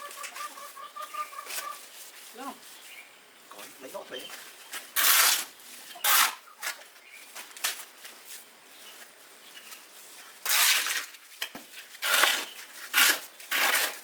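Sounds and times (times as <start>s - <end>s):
short scraping strokes: 4.8s - 6.8s.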